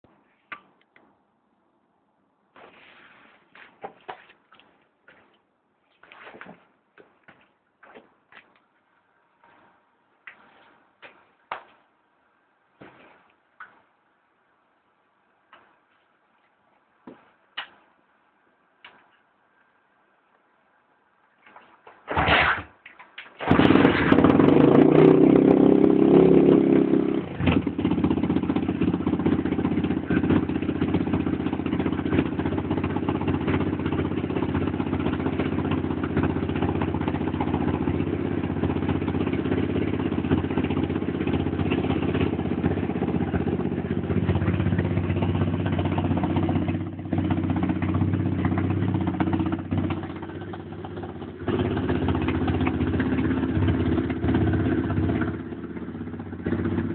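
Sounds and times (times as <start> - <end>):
motorbike engine starting and idling: 22.0 - 56.9.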